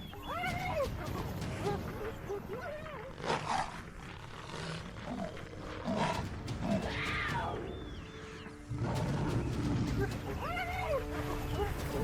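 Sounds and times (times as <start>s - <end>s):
wild animal growling and snarling: 2.6s - 7.6s, 8.6s - 10.1s.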